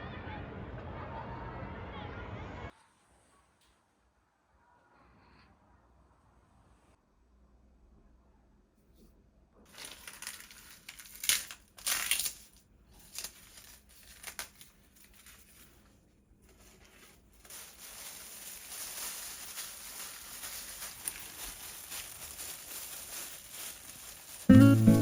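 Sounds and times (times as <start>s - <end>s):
handling rustling: 9.7s - 25.0s.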